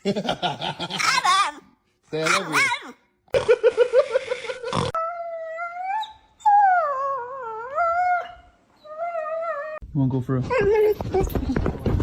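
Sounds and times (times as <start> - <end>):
dog howling whines: 5.0 - 9.8.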